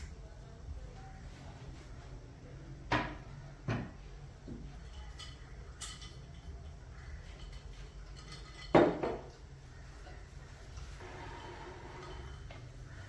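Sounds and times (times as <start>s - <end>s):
kitchen items knocking and clunking: 2.9s - 9.5s.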